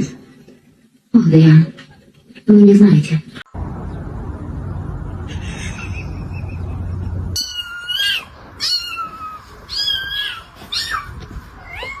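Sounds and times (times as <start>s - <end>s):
low rumble: 3.5s - 7.4s
cat meowing: 7.4s - 12.0s.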